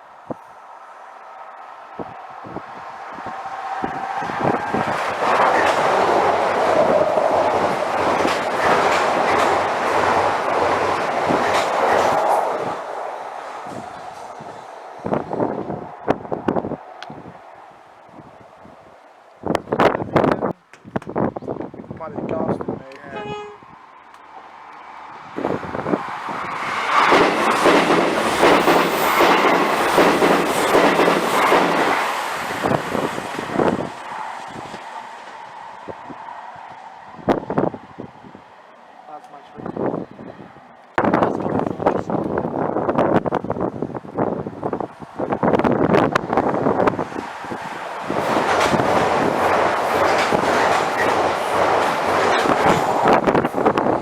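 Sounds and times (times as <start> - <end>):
train passing: 0.0 - 20.4, 23.1 - 54.0
train wheels clattering on rails: 3.9 - 12.7, 26.4 - 34.0, 45.6 - 54.0
wheels clicking over rail joints: 46.8 - 54.0.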